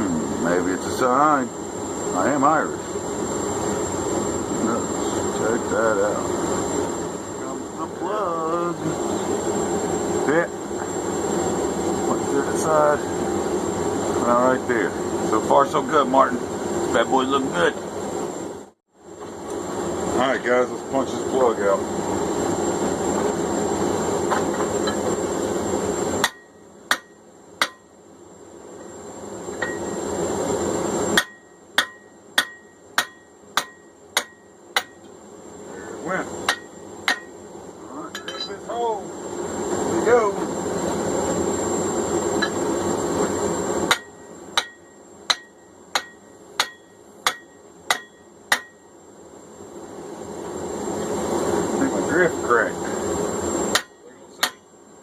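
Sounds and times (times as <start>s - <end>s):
hammer blows on metal: 26.2s - 27.9s, 31.1s - 35.1s, 43.8s - 48.9s.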